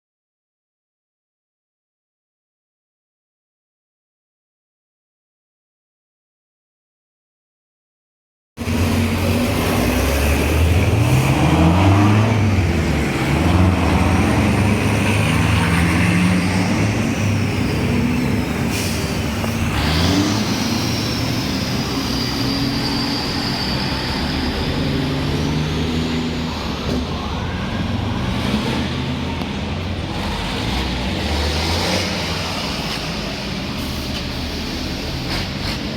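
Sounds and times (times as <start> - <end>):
diesel truck engines revving: 8.6 - 35.9.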